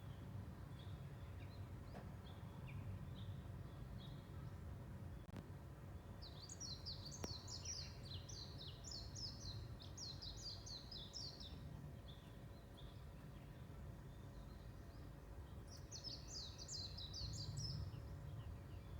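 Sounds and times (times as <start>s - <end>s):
small birds chirping: 6.0s - 18.9s.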